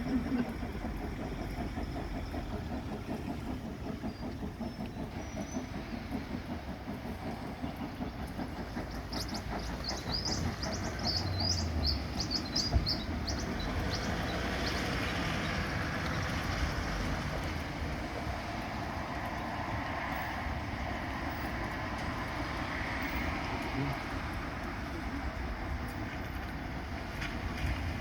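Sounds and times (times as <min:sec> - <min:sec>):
steam hiss: 0:00.0 - 0:28.0
steam locomotive pulsing rumble: 0:00.0 - 0:28.0
birds chirping: 0:07.2 - 0:16.3.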